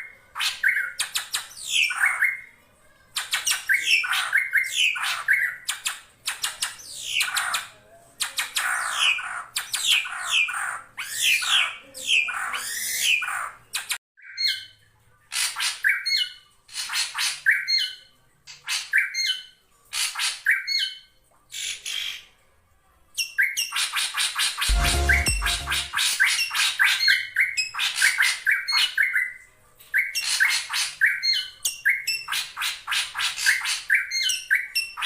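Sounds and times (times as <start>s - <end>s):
short two-part bird call: 24.7s - 26.0s.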